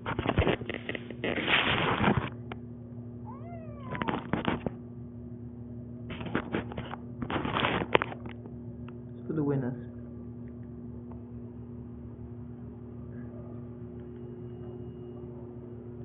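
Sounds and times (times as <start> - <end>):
cat meowing: 3.2 - 4.6.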